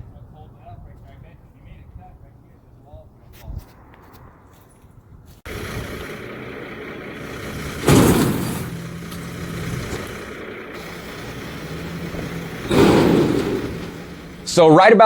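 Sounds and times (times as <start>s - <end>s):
loud noisy burst: 5.5s - 14.6s
tractor diesel engine running: 5.5s - 14.8s.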